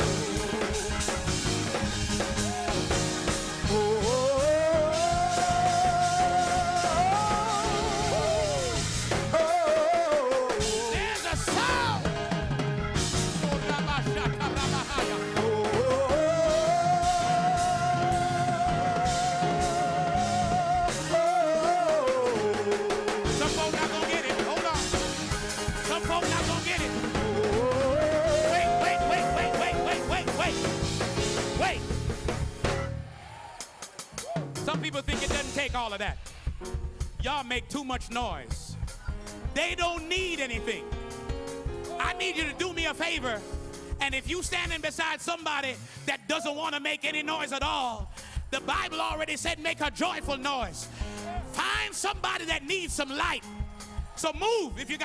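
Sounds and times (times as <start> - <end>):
band with drums: 0.0 - 55.0
person singing with vibrato: 2.4 - 12.1, 13.4 - 25.0, 25.8 - 31.8.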